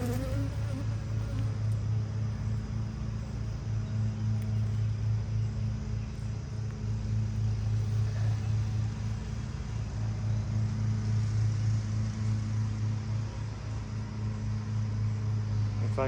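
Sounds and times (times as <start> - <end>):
honeybees buzzing: 0.0 - 2.2.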